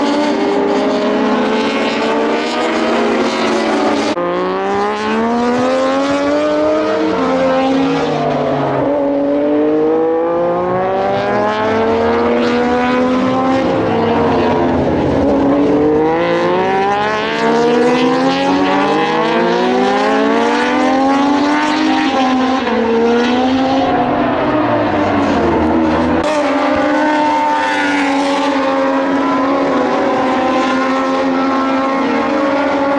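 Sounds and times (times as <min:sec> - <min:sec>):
racing motorcycles on track: 0:00.0 - 0:32.9.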